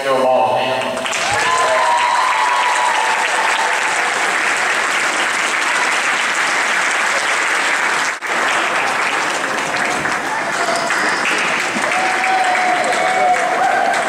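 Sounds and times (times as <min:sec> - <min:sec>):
crowd applauding: 0:00.8 - 0:14.0.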